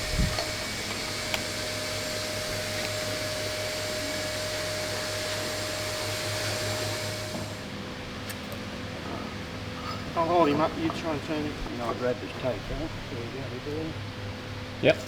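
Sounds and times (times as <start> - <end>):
motor-driven machine whirring: 0.0 - 7.8.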